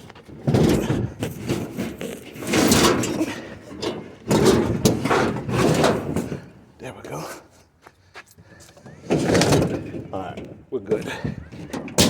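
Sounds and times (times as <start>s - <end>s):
scrap metal scraping and knocking: 0.3s - 6.7s.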